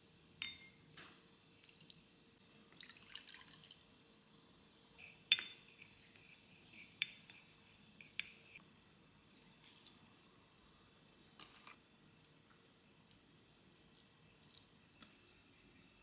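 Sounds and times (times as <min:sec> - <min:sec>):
glass and dishes clinking: 0:00.4 - 0:00.8, 0:05.0 - 0:07.4.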